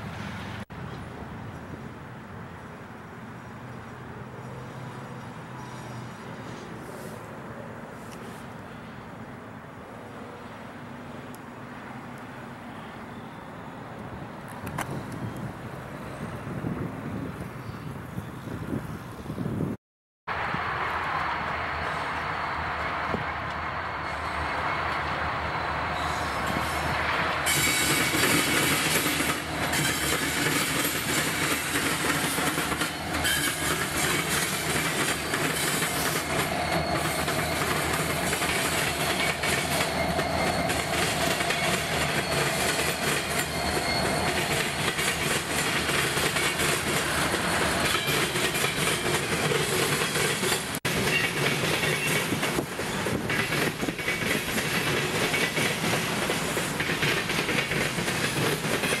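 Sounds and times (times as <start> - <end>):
faint wheel squeal: 4.8 - 7.3, 35.1 - 45.8
freight train rolling past: 20.3 - 59.0.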